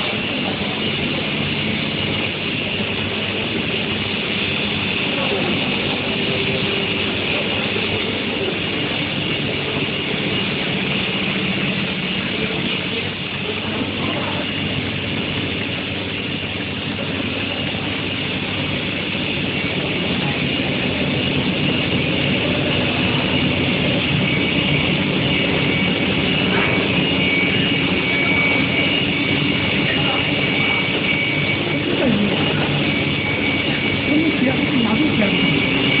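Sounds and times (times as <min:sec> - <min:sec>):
faint high whine: 0:00.0 - 0:36.0
industrial machine noise: 0:00.0 - 0:36.0
low hum: 0:00.0 - 0:36.0.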